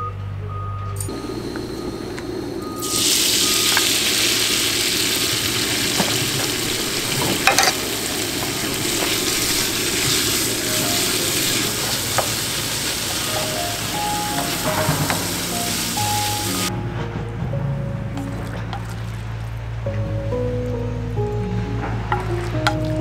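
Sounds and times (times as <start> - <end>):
tofu sizzling in oil: 2.8 - 16.7.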